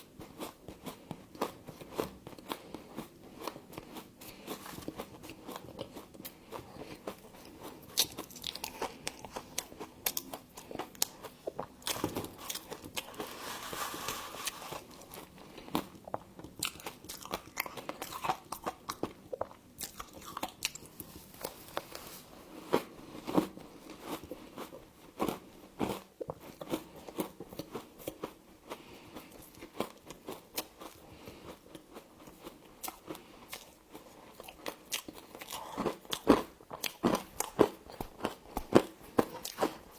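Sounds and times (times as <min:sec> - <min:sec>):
crunching frost being chewed: 0:00.0 - 0:39.9.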